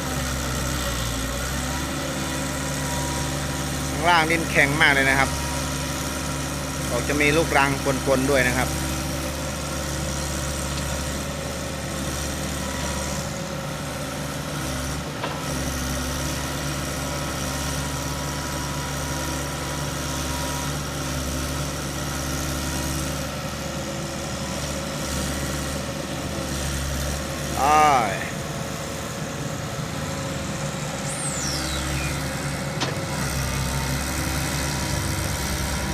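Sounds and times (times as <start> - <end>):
truck diesel engine running: 0.0 - 35.9.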